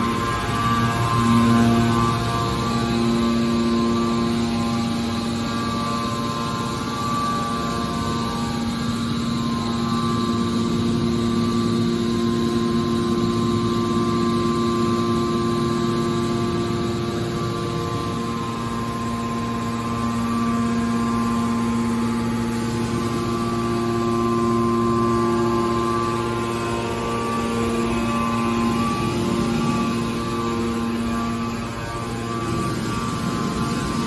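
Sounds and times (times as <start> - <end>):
baler machine humming: 0.0 - 34.0.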